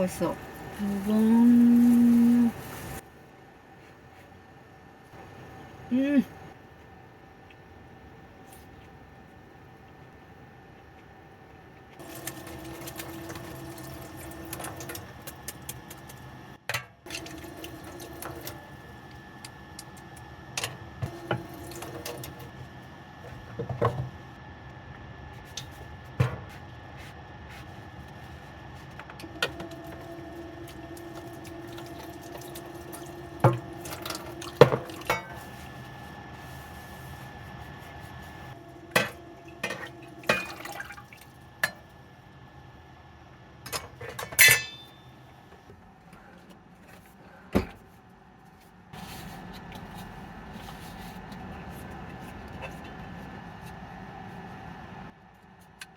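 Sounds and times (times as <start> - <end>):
faint steady hum: 0.0 - 55.9
small liquid sounds: 12.0 - 16.3.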